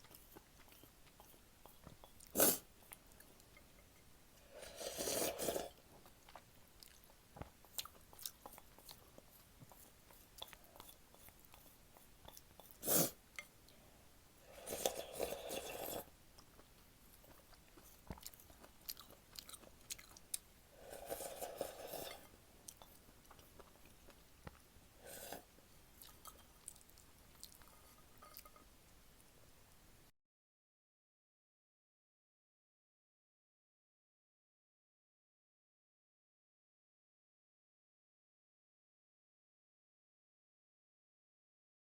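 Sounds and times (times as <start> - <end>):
person slurping noodles: 0.0 - 2.7, 4.4 - 5.8, 12.7 - 13.2, 14.4 - 16.1, 20.7 - 22.8, 25.0 - 26.4
wet chewing clicks: 16.4 - 20.5.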